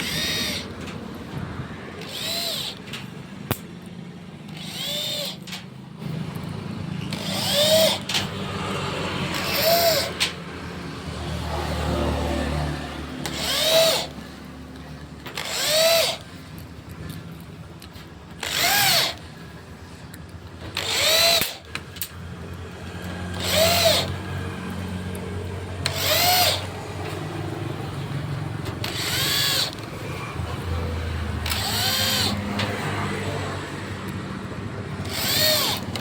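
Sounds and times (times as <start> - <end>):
power drill bursts: 0.0 - 1.0, 2.0 - 3.2, 4.5 - 6.2, 7.1 - 10.4, 13.2 - 14.4, 15.2 - 16.4, 18.3 - 19.5, 20.6 - 21.8, 23.2 - 24.3, 25.8 - 33.8, 34.9 - 36.0.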